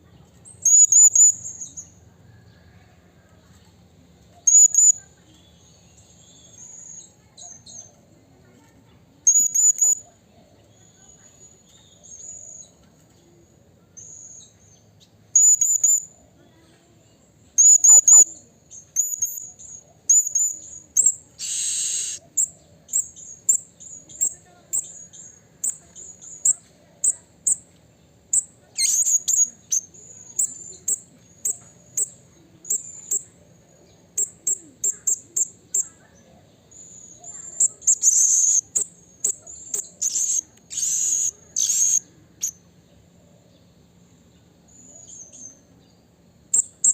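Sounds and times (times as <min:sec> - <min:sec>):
parrot high-pitched chirps: 0:00.6 - 0:01.8, 0:04.4 - 0:05.1, 0:09.2 - 0:10.0, 0:15.4 - 0:16.1, 0:17.6 - 0:25.0, 0:28.3 - 0:33.3, 0:34.2 - 0:36.1, 0:36.8 - 0:42.6, 0:46.5 - 0:46.9.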